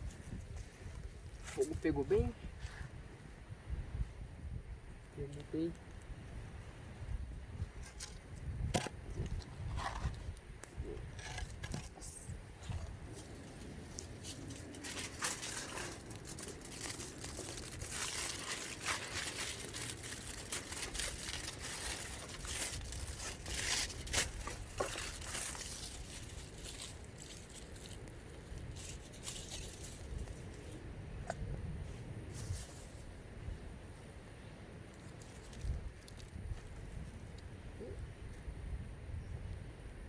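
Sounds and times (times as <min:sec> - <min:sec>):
campfire crackling and popping: 0:05.0 - 0:09.6, 0:12.9 - 0:29.2.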